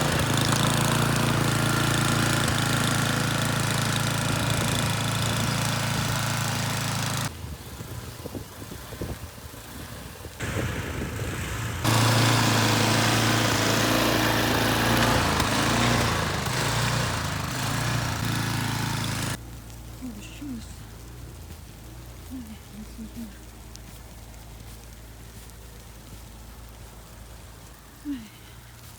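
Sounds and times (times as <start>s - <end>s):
snowblower engine running: 0.0s - 7.3s, 10.4s - 19.4s.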